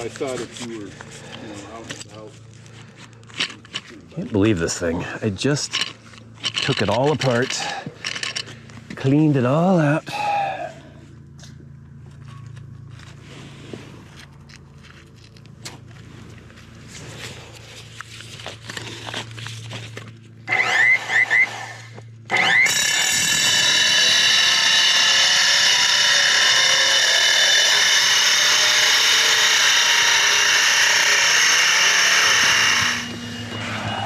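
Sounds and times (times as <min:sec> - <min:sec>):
power tool whining: 0:05.0 - 0:10.5, 0:18.5 - 0:34.0.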